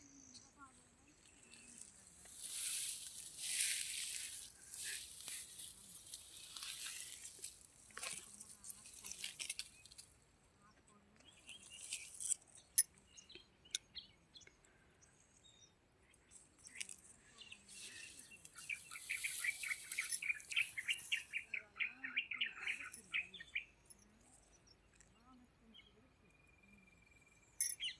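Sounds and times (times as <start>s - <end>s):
rustling: 1.6s - 9.8s, 18.9s - 21.1s
birds chirping: 12.6s - 27.9s.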